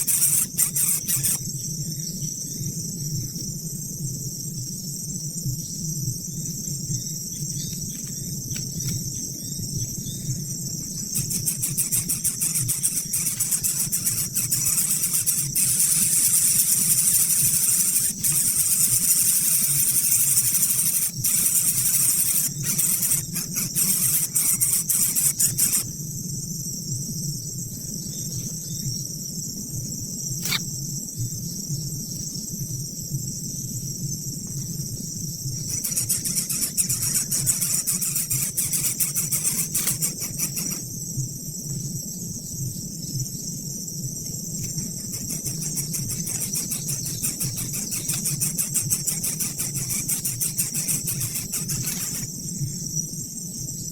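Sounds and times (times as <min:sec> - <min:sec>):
insects trilling: 0:00.0 - 0:53.9
short click: 0:30.4 - 0:30.6.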